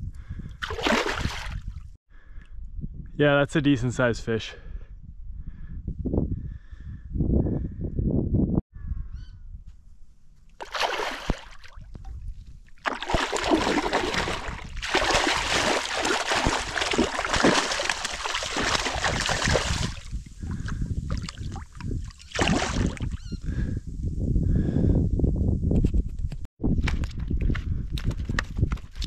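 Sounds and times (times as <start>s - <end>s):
water splashing and sloshing: 0.6s - 1.8s, 10.5s - 23.2s.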